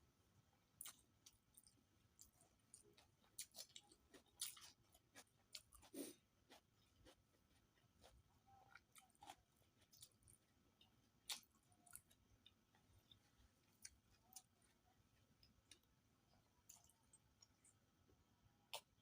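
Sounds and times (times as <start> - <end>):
person chewing food: 0.6 - 19.0.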